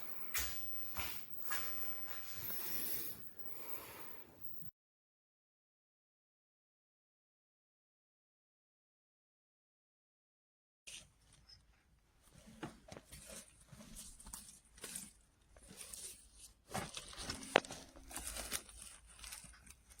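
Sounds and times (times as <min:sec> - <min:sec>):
faint rustling and knocks: 0:11.0 - 0:20.0.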